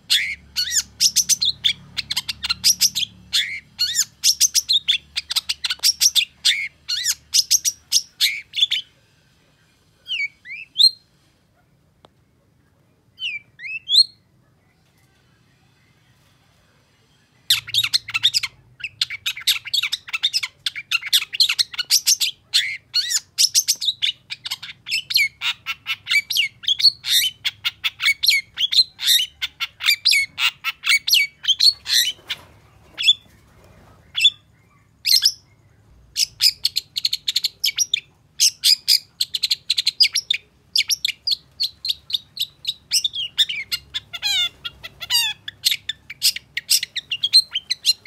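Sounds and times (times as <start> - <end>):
bird singing fast chirps: 0.0 - 8.9, 34.0 - 48.0.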